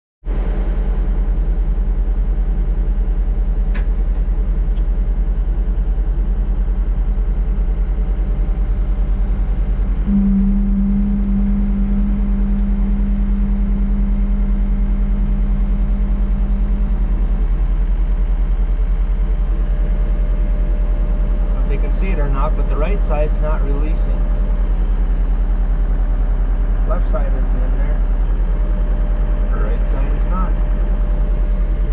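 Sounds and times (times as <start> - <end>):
diesel engine rumbling: 0.3 - 31.9
high whine: 8.1 - 31.9.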